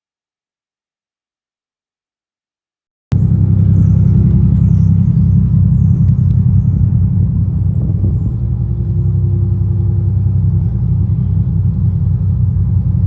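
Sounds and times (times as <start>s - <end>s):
boat engines rumbling: 3.1s - 13.0s
faint steady hum: 3.1s - 13.0s.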